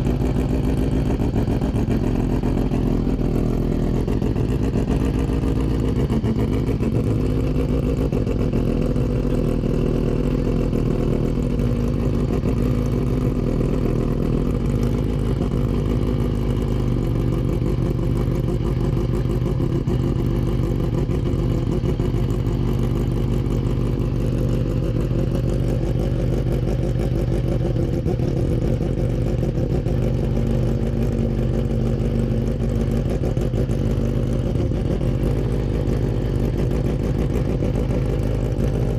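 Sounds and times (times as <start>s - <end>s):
race car rotary engine running: 0.0s - 38.9s.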